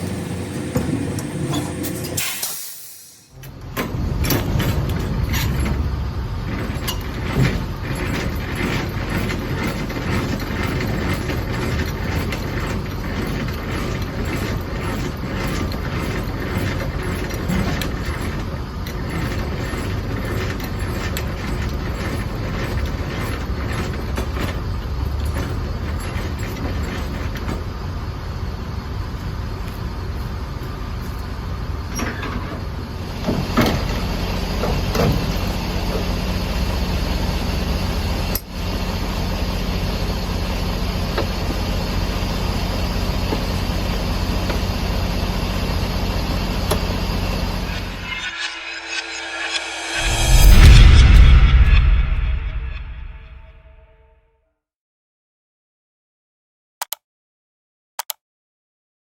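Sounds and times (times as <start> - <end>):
truck engine and road rumble: 0.0 - 53.4
rattles and knocks: 3.7 - 27.8.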